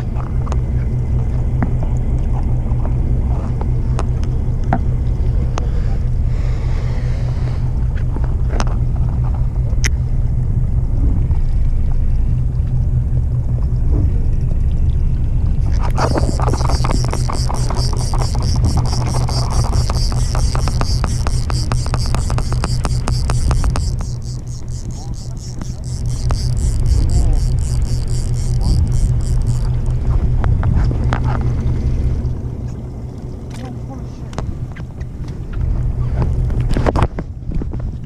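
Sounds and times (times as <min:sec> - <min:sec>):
boat engine rumbling: 0:00.0 - 0:38.0
scattered clicks: 0:15.7 - 0:31.7.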